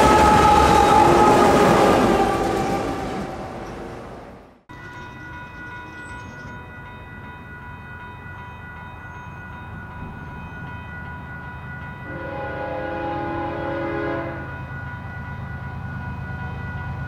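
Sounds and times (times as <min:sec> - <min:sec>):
train rumbling by: 0:00.0 - 0:17.0.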